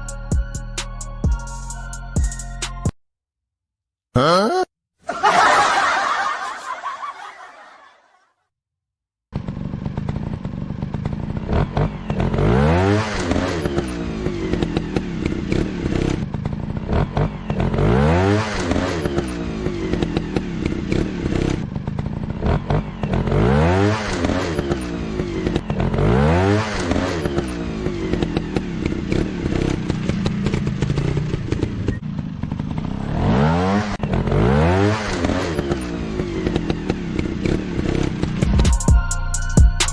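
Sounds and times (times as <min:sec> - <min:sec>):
dirt bike engine revving: 0:09.4 - 0:38.6.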